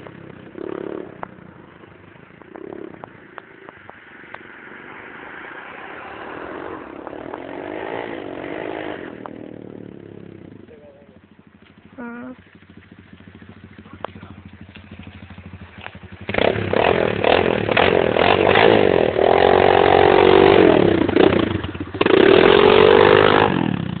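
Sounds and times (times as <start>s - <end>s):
motocross bike engine revving: 0.0s - 24.0s.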